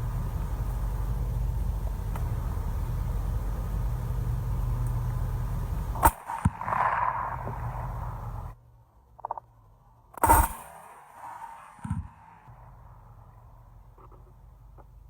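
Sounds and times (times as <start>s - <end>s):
hiss: 0.0s - 8.6s, 10.2s - 12.6s
sharp crack: 0.0s - 9.5s, 10.1s - 15.0s
low rumble: 0.0s - 10.1s.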